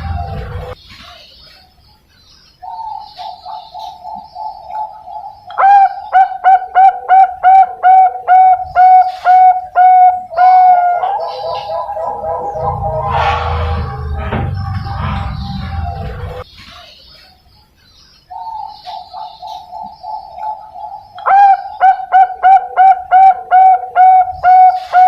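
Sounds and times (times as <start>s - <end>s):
dove cooing: 3.2s - 13.6s, 18.4s - 25.0s.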